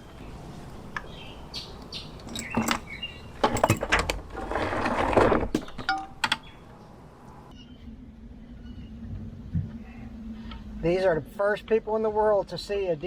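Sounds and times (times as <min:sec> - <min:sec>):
metallic clicks and clinks: 0:02.2 - 0:04.1
metal parts rattling and scraping: 0:02.2 - 0:06.3.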